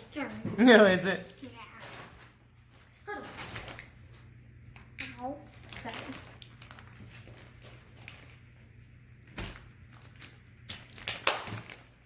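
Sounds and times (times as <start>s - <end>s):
steady low hum: 2.2s - 11.0s.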